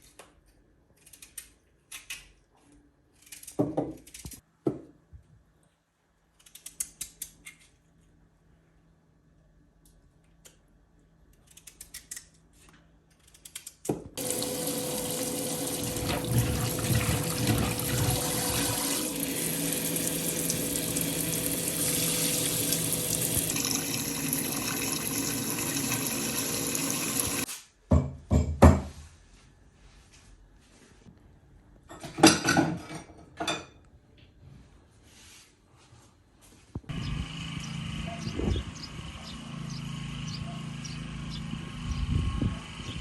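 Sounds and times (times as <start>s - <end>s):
tap water running into sink: 14.2s - 27.4s.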